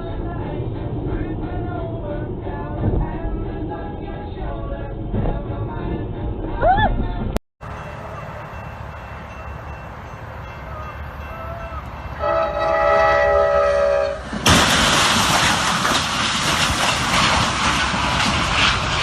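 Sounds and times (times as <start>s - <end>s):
low rumble: 0.0s - 7.4s
horn chord: 12.2s - 14.2s.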